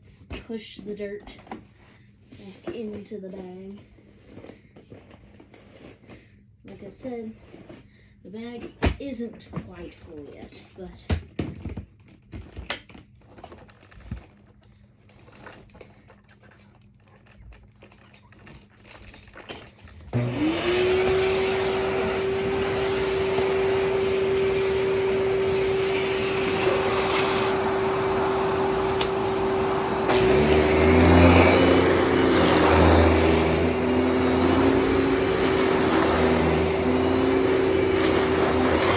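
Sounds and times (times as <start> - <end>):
vacuum cleaner motor whine: 20.0 - 38.9.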